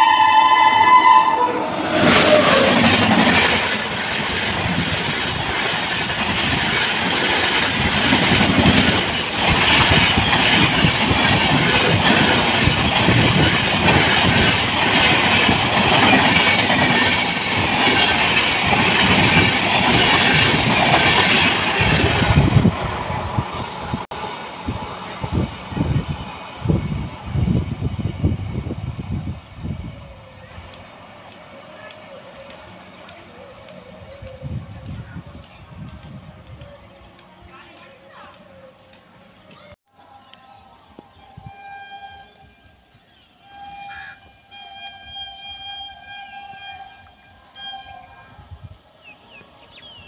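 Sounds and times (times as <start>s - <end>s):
locomotive horn: 0.0s - 3.0s, 41.2s - 49.3s
train passing close by: 0.0s - 50.0s
wheels clacking over rail joints: 1.8s - 22.8s.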